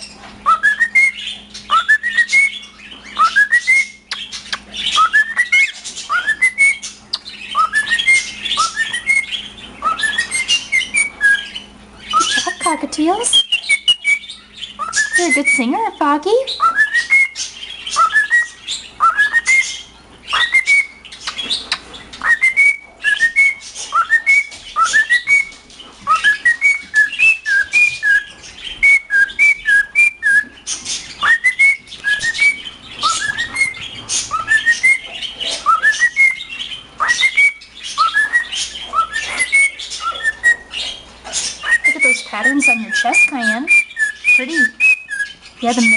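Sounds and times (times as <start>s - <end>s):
cockatiel whistling: 0.0s - 12.7s, 13.3s - 15.8s, 16.5s - 45.9s
bird clicks and chirps: 3.8s - 4.8s, 21.1s - 22.4s.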